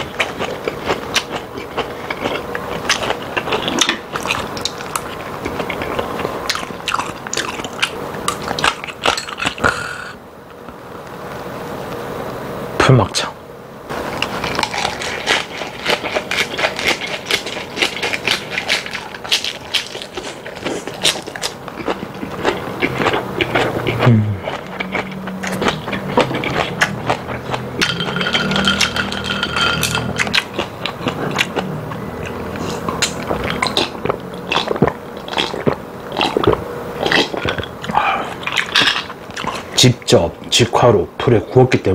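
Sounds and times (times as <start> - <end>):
crunching and wet chewing: 0.0 - 10.2, 13.9 - 40.6
person humming mmm: 9.6 - 10.2, 22.9 - 27.9, 37.9 - 38.4.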